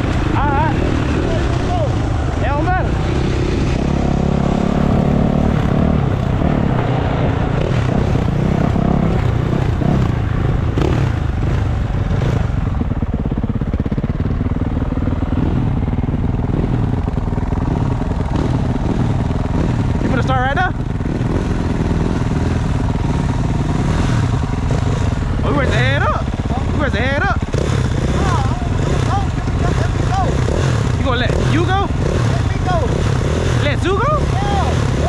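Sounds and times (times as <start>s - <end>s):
dirt bike engines running: 0.0s - 35.0s.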